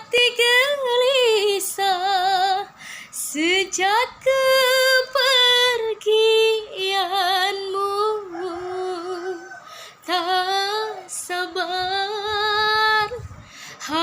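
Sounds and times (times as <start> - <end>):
woman singing with vibrato: 0.0 - 14.0
singer breathing: 2.7 - 3.2, 9.6 - 10.0, 13.3 - 13.9.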